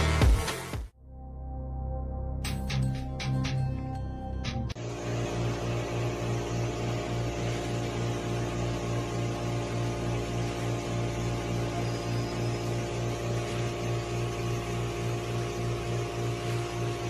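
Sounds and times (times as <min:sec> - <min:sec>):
pulsing machine hum: 0:04.7 - 0:17.0.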